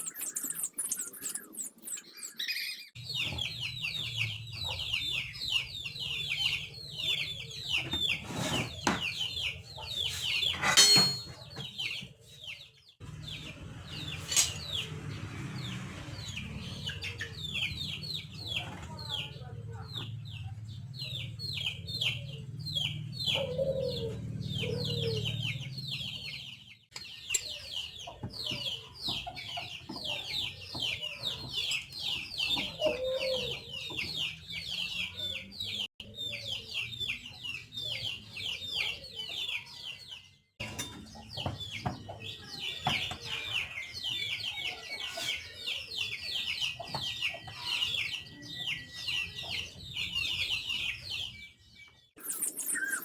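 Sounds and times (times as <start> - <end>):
poultry peeping: 0.0 - 53.0
poultry clucking: 21.1 - 51.4.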